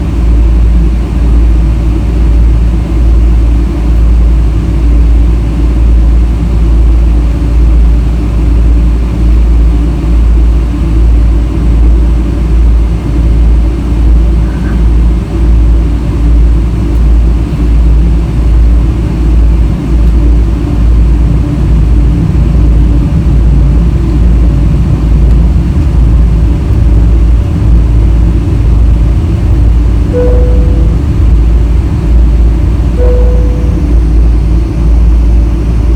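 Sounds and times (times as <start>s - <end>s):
airplane cabin engine rumble: 0.0s - 35.9s.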